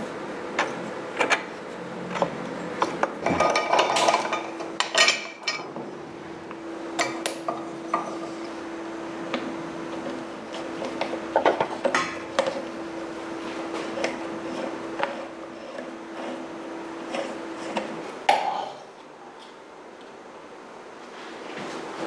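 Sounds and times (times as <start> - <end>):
metal tools clinking and scraping: 2.1 - 5.7.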